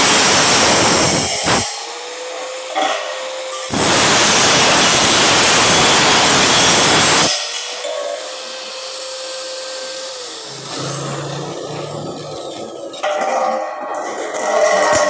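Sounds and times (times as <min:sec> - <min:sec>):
grinder grinding steel: 0:00.0 - 0:15.0
grinder whining and spinning down: 0:00.0 - 0:15.0.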